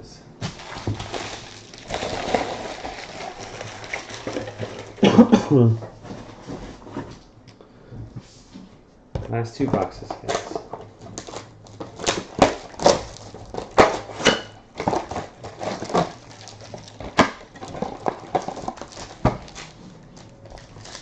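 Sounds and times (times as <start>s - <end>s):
foil packs crackling and rustling: 0.4s - 5.3s, 10.0s - 21.0s.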